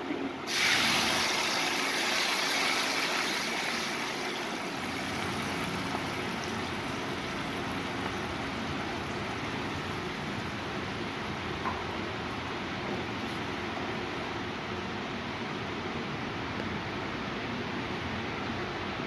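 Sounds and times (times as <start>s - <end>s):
tomatoes sizzling in hot oil: 0.5s - 10.6s.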